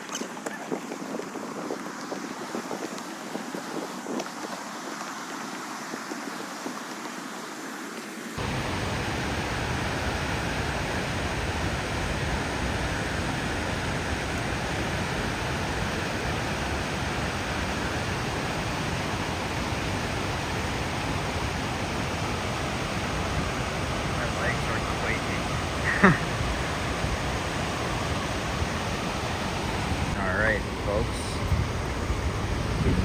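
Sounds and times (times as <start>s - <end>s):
waterfall roaring: 8.4s - 33.0s.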